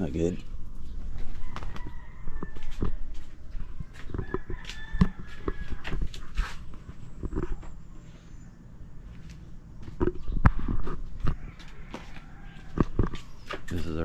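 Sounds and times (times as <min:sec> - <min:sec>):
rooster crowing: 0:01.2 - 0:03.3, 0:03.9 - 0:06.3, 0:11.2 - 0:13.3.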